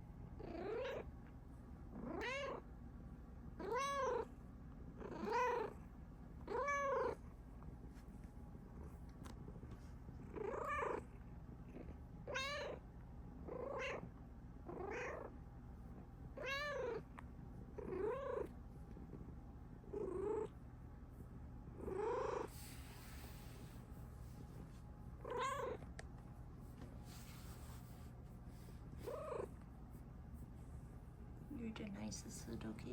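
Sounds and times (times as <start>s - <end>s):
cat meowing: 2.1s - 2.6s, 5.1s - 5.7s, 12.3s - 12.8s
cat purring: 8.6s - 12.8s, 17.6s - 20.6s, 21.7s - 23.7s, 27.1s - 29.6s.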